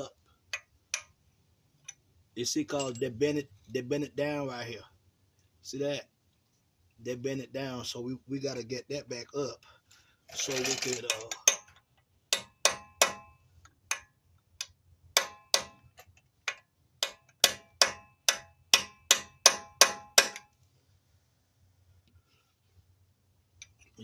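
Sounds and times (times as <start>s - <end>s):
hammer striking chisel on metal: 0.5s - 1.2s, 10.9s - 20.5s.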